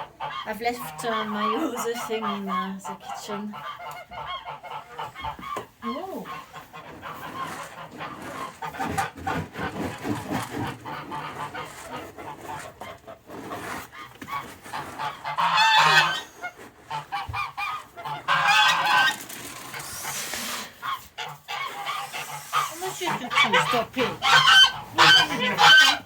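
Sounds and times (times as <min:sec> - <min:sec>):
geese honking: 0:00.0 - 0:08.8, 0:14.3 - 0:26.0.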